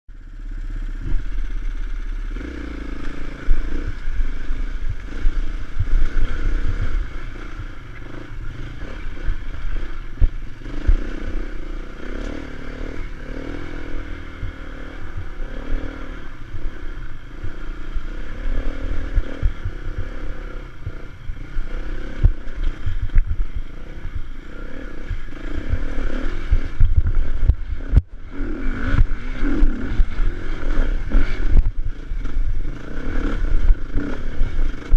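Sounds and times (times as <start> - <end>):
motorcycle engine revving: 0.1 - 34.9
motorcycle knocks and rattles: 3.1 - 12.5, 18.5 - 34.9.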